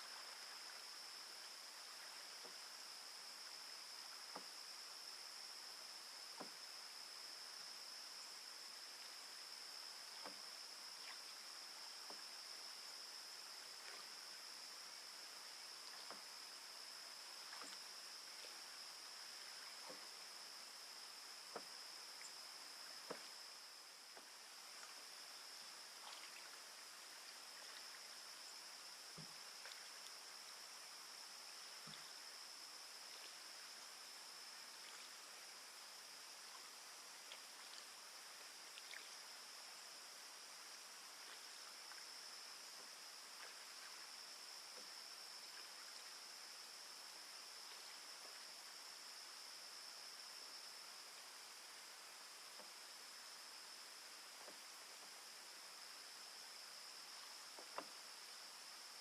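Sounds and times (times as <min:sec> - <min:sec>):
crickets trilling: 0:00.0 - 0:59.0
faint ticks: 0:10.1 - 0:10.5, 0:23.0 - 0:25.0, 0:38.7 - 0:39.2, 0:57.4 - 0:58.0.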